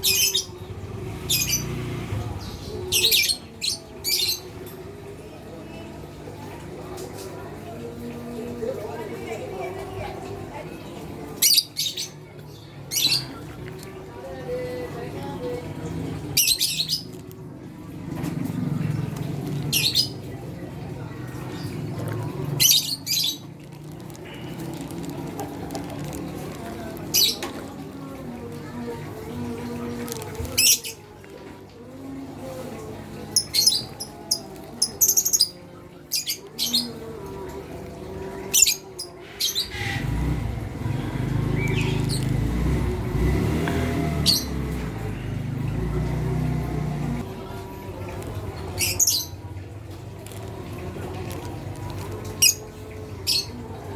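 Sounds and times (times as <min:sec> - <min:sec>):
lovebirds chirping and squawking: 0:00.0 - 0:01.8, 0:16.4 - 0:17.2, 0:19.5 - 0:20.4, 0:21.5 - 0:28.2, 0:29.6 - 0:31.2, 0:32.8 - 0:37.1, 0:41.4 - 0:42.5, 0:48.6 - 0:49.4, 0:50.8 - 0:53.6
lovebirds squawking: 0:21.5 - 0:27.8.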